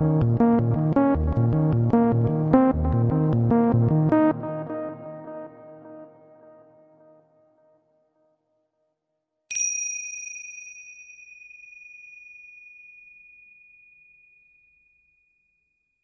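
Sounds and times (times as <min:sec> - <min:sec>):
soft synth music: 0:00.0 - 0:07.7
high bell-like ding: 0:09.5 - 0:15.4.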